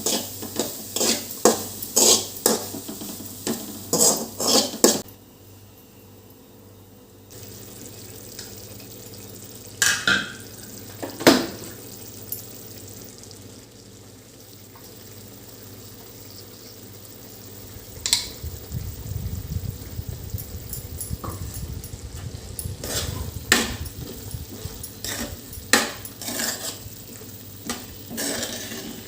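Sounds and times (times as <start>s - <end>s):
food sizzling in a pan: 0.0s - 5.1s, 7.3s - 29.0s
utensil clinking against pan: 20.3s - 26.8s.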